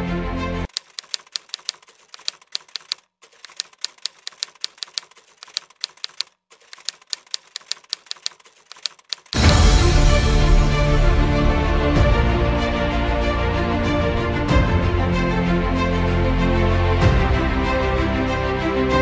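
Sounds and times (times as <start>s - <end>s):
music: 0.0s - 0.7s, 9.4s - 19.0s
typewriter keys clacking: 0.7s - 9.4s.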